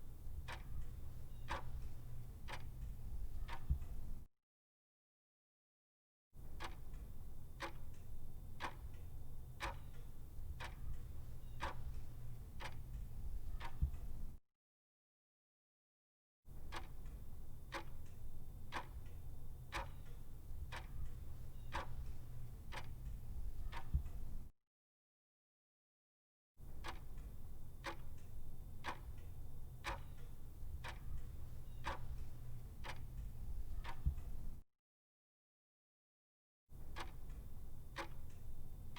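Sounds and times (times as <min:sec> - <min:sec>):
clock ticking: 0:00.0 - 0:04.0, 0:06.6 - 0:07.0, 0:07.6 - 0:14.2, 0:17.7 - 0:24.4, 0:27.8 - 0:34.5, 0:37.0 - 0:38.5
steady low hum: 0:00.0 - 0:04.2, 0:08.2 - 0:14.4, 0:18.1 - 0:24.5, 0:27.3 - 0:34.6.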